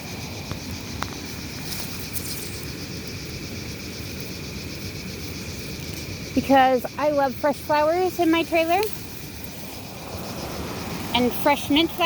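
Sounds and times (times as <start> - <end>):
insects trilling: 0.0 - 12.0
outdoor background rush: 0.0 - 12.0.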